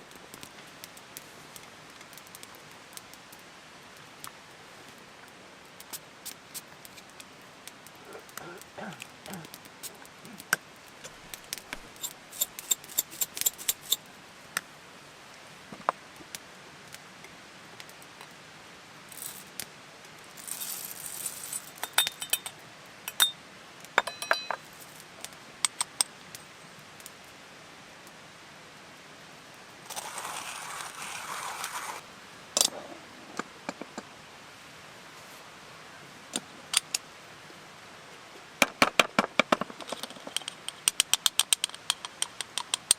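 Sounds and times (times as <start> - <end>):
steady hissing noise: 0.0 - 42.9
metal and glass items clinking: 20.4 - 23.4, 24.0 - 24.7.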